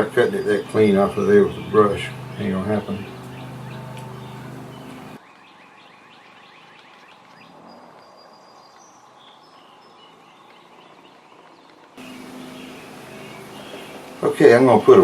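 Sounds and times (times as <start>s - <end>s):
faint birds chirping: 0.0s - 15.0s
low hiss: 12.0s - 15.0s.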